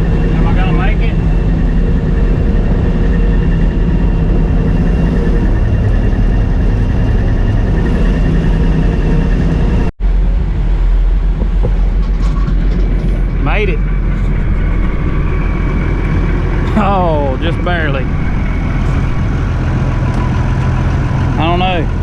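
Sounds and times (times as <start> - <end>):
combine harvester droning: 0.0 - 22.0
faint steady whine: 0.0 - 22.0.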